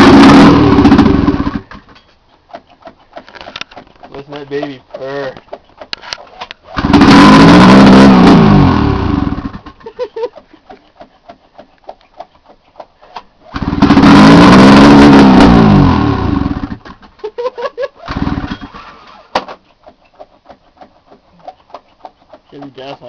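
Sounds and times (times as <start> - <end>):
snowmobile engine sputtering and revving: 0.0 - 1.8, 6.7 - 9.8, 13.5 - 16.8, 17.7 - 18.6.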